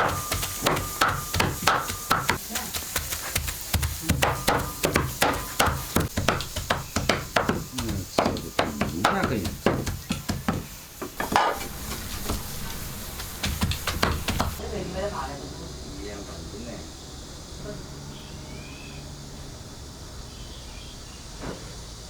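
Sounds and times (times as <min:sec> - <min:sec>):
rapid sharp knocks: 0:00.0 - 0:12.4, 0:13.2 - 0:14.6.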